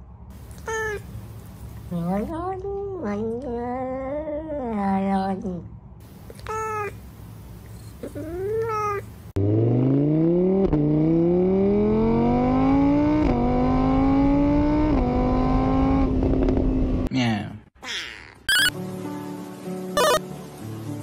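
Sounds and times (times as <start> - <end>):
cat meowing: 0.5 - 1.0, 6.4 - 7.0, 8.0 - 9.0
car engine revving through gears: 9.4 - 17.1.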